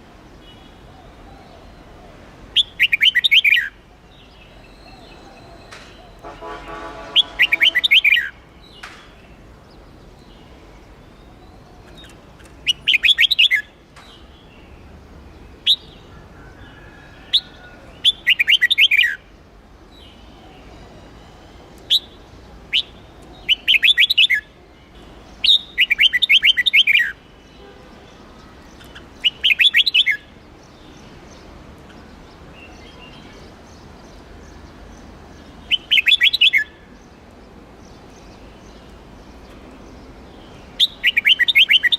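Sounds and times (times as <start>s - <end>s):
bird warbling song: 0.4s - 19.3s, 19.9s - 24.5s, 25.2s - 41.9s
sharp bird call notes: 5.4s - 8.4s.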